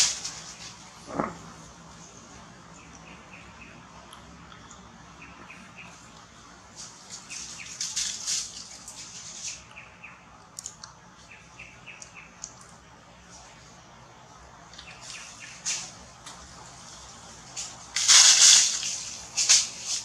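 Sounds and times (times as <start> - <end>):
hissing rustle with crackles: 0.0 - 2.2, 6.0 - 9.8, 14.8 - 20.0.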